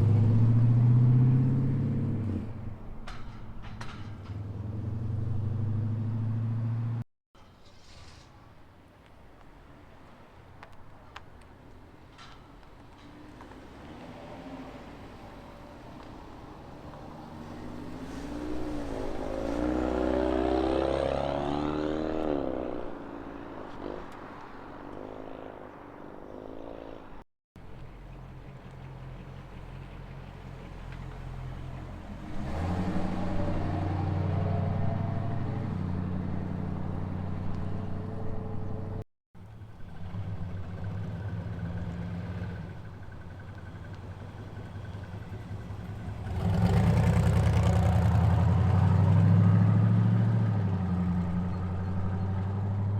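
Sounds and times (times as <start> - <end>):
car engine revving: 4.2 - 7.0, 17.3 - 24.2, 31.4 - 39.0, 46.0 - 52.9.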